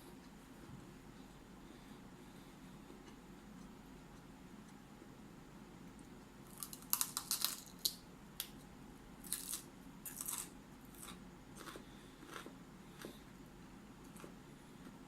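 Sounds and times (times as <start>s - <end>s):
chewing crunchy broccoli: 9.2s - 13.4s, 14.0s - 15.0s.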